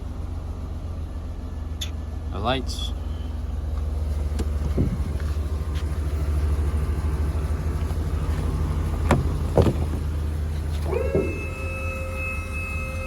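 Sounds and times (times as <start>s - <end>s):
truck engine idling: 0.0s - 13.0s
short knocks: 8.4s - 11.4s.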